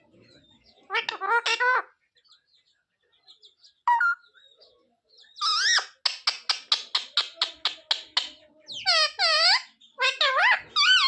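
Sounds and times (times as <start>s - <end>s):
parrot calling: 0.9s - 1.9s, 5.4s - 11.0s.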